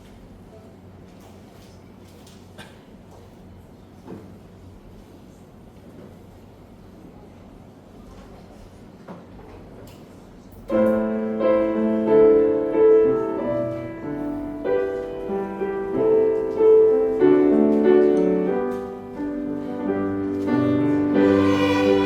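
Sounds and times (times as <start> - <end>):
instrumental ensemble playing hymn: 14.8 - 22.0.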